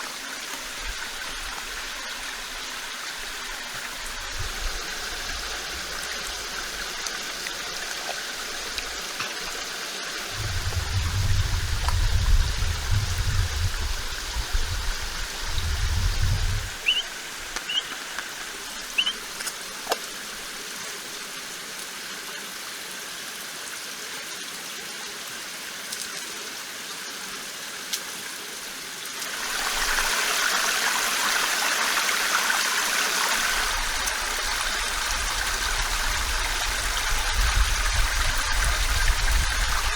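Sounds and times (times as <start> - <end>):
flowing stream: 0.0 - 39.9
low rumble: 10.3 - 16.8
short high chirps: 16.8 - 17.1, 19.0 - 19.2.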